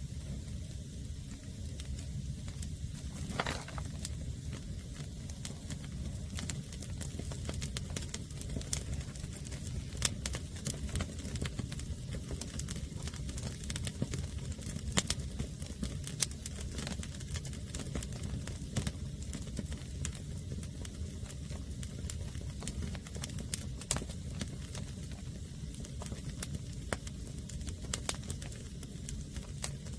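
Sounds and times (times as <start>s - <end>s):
fire low rumble: 0.0s - 29.9s
wood fire crackling and popping: 0.1s - 29.9s.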